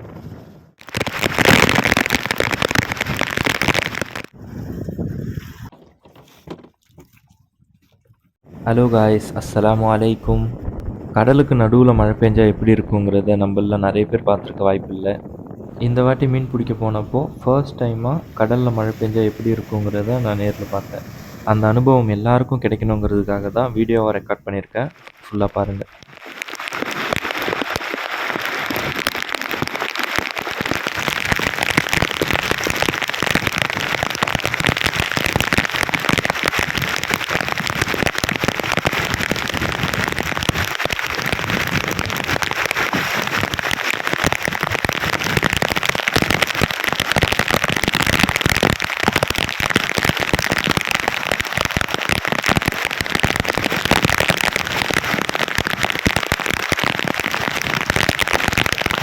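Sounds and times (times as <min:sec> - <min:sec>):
heavy rain pouring: 0:00.8 - 0:04.4, 0:15.9 - 0:24.1, 0:25.0 - 0:59.0.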